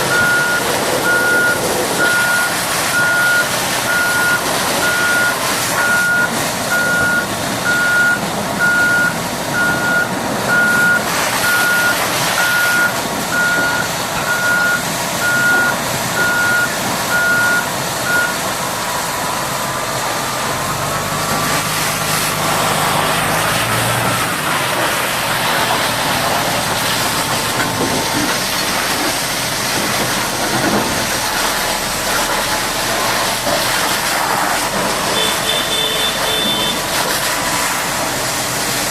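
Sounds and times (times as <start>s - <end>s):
diesel engine: 0.0s - 38.9s
reverse alarm beeping: 0.1s - 18.5s, 35.2s - 36.8s.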